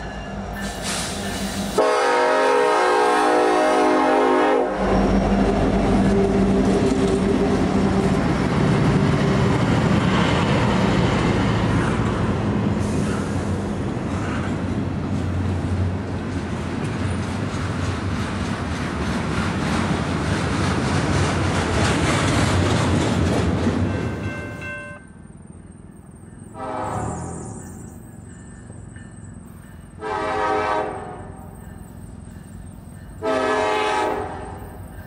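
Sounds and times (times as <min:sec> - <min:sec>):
freight cars rumbling on rails: 0:00.0 - 0:35.0
locomotive engines passing: 0:00.0 - 0:35.0
locomotive horn chord: 0:01.8 - 0:05.1, 0:26.5 - 0:27.6, 0:30.0 - 0:31.5, 0:33.2 - 0:34.6.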